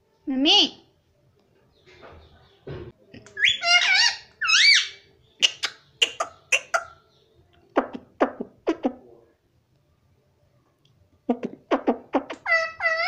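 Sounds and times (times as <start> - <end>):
parrot whistled calls: 3.4 - 6.9.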